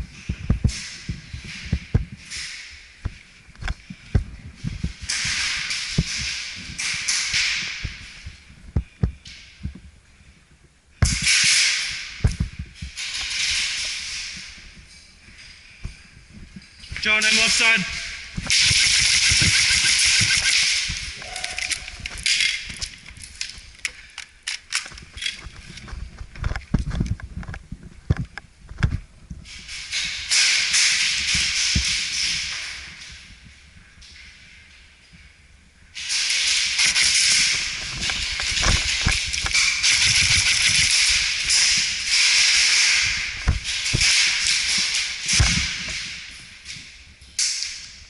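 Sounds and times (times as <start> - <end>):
airsoft guns firing: 18.4 - 22.5.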